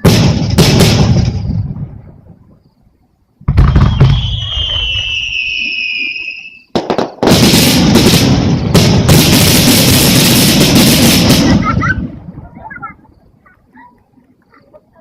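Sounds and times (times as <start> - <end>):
firework bang: 0.0 - 2.3, 3.4 - 5.7, 6.7 - 12.4
firework bursts and crackling: 0.0 - 2.5, 3.4 - 13.0
firework whistle: 3.5 - 8.3.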